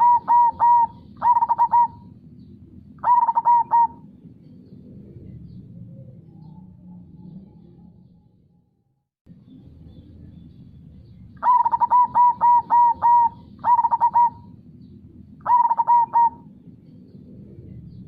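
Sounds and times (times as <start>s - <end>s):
dove cooing: 0.0s - 2.2s, 2.9s - 7.4s, 11.4s - 18.0s
low background noise: 0.0s - 8.4s, 9.3s - 18.0s.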